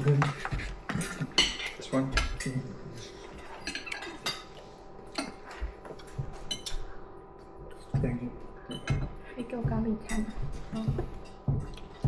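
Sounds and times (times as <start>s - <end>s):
cutlery clinking on plates: 0.0s - 6.9s.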